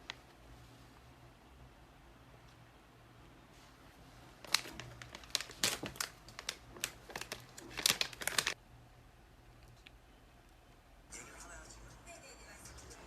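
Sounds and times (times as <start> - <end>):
packaging crinkling: 4.3 - 8.6.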